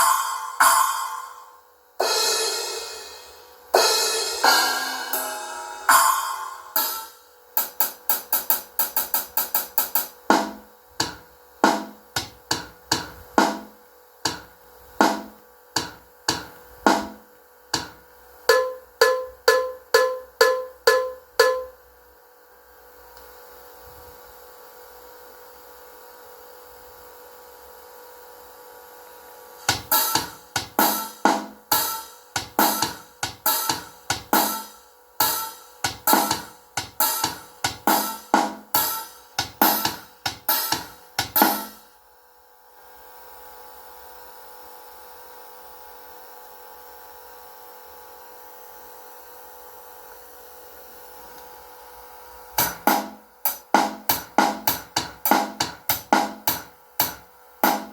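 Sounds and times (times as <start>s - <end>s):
drum and cymbal hits: 0.0s - 21.8s, 29.6s - 42.0s, 52.6s - 57.9s.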